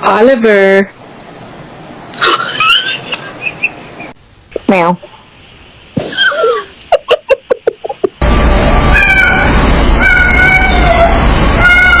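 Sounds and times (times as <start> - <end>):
loud continuous noise: 0.0 - 12.0
cat meowing: 8.9 - 12.0
cat yowling: 8.9 - 12.0.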